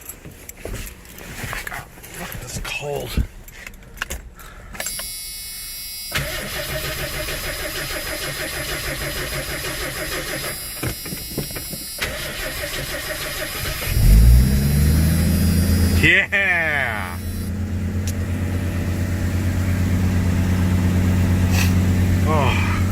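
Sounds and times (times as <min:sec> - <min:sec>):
engine cranking on starter: 0:06.1 - 0:10.8, 0:11.8 - 0:16.0
engine running fast and loud: 0:13.9 - 0:16.2, 0:17.0 - 0:22.9.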